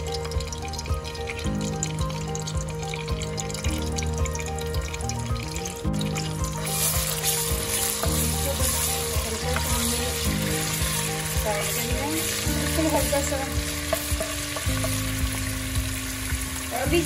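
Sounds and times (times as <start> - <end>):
paste sizzling in hot oil: 0.0 - 17.0
spatula stirring in pan: 6.2 - 16.5.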